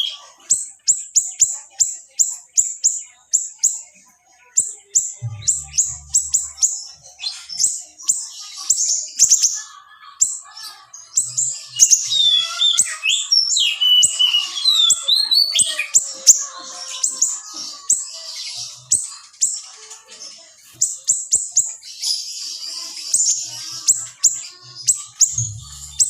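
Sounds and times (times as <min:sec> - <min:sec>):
small songbird chirping and whistling: 0:00.0 - 0:03.9, 0:04.6 - 0:09.6, 0:11.1 - 0:19.7, 0:20.7 - 0:26.0.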